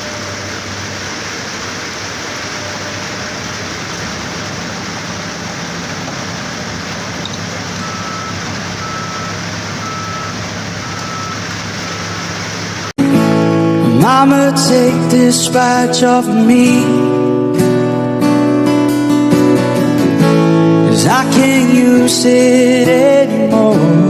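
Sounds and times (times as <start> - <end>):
vehicle running: 0.0 - 14.2
short high beeps: 7.8 - 12.3.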